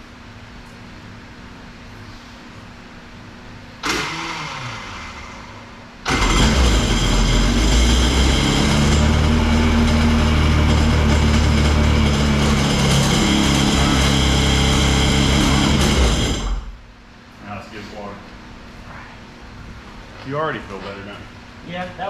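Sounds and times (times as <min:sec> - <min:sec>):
jet ski engine idling: 0:06.0 - 0:16.1.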